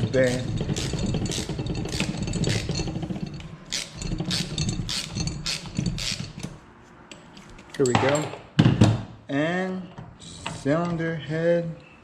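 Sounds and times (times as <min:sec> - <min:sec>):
socket ratchet clicking: 0:03.7 - 0:06.5.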